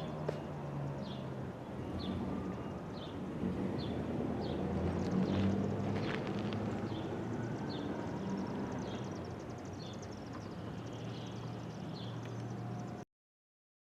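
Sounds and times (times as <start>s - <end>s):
bird chirping: 3.8s - 13.0s.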